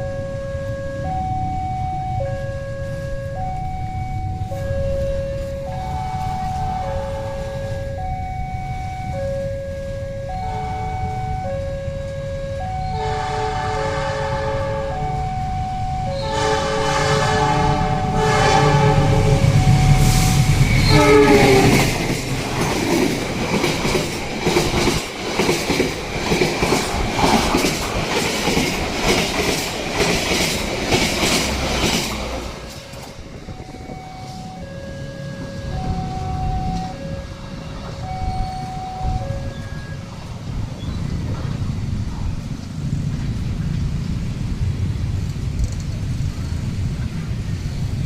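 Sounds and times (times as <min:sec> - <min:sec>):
crossing two-tone warning chime: 0:00.0 - 0:27.1, 0:28.0 - 0:40.6
train horn blasts: 0:02.2 - 0:08.1, 0:08.8 - 0:22.2, 0:31.2 - 0:40.0
train wheels clattering over rails: 0:19.4 - 0:33.9.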